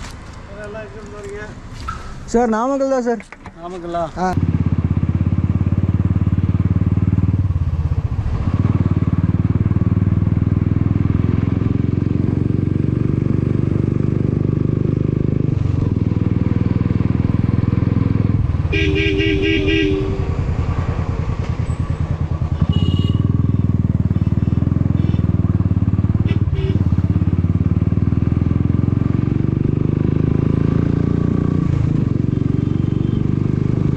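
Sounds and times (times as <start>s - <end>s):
motorcycle engine running: 4.4s - 33.9s
horn pulsing beep: 18.7s - 20.4s.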